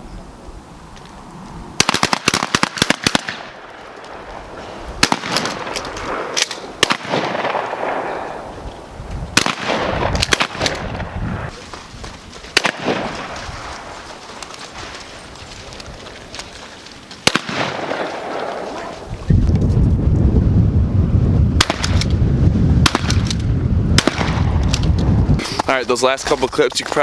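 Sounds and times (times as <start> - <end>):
gunshots with short echo: 5.0 - 8.5, 9.4 - 11.2, 12.6 - 13.7, 17.2 - 18.9, 21.6 - 22.2, 22.8 - 24.6.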